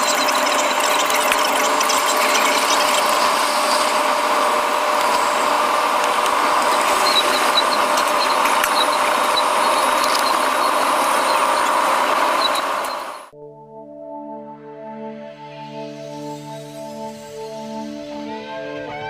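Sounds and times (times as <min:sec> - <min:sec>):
train cabin rush: 0:03.2 - 0:13.2.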